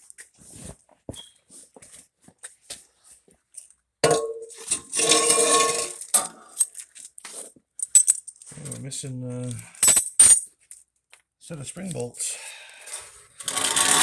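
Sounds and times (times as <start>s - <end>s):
metal parts clanking: 4.0s - 7.1s, 9.4s - 10.5s.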